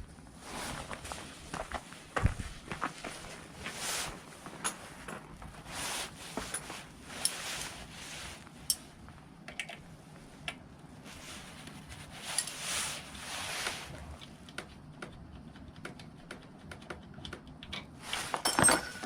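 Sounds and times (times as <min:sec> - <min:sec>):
rustling or scraping: 0:00.4 - 0:09.1, 0:11.0 - 0:14.4, 0:18.0 - 0:19.0.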